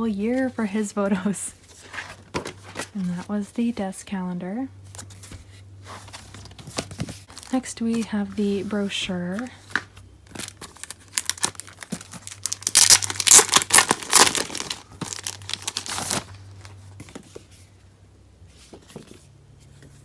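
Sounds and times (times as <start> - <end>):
packaging crinkling and tearing: 6.3 - 7.7, 10.2 - 16.8.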